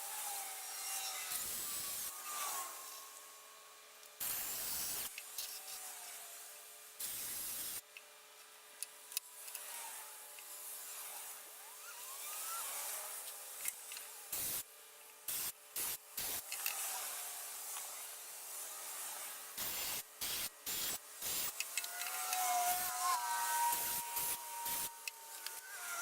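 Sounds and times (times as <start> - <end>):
power drill boring into wood: 9.2 - 13.7, 18.6 - 26.0.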